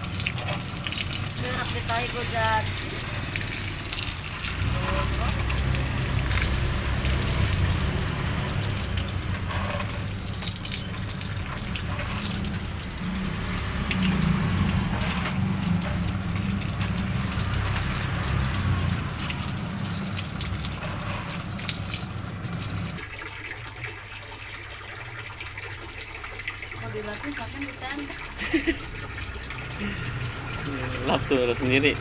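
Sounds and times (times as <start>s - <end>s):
water pouring and splashing: 0.0s - 32.0s.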